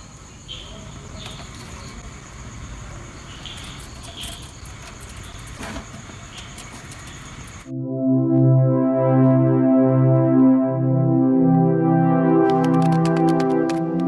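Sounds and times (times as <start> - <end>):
steady background hiss: 0.0 - 7.7
high-pitched drone: 7.7 - 14.0.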